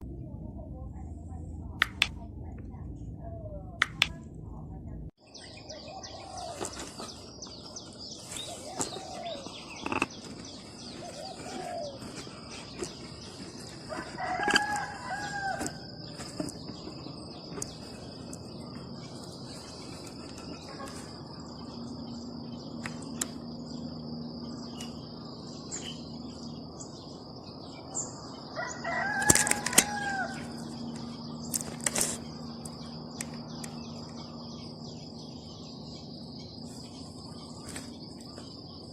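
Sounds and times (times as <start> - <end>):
rooster crowing: 13.9 - 16.0, 28.6 - 30.6.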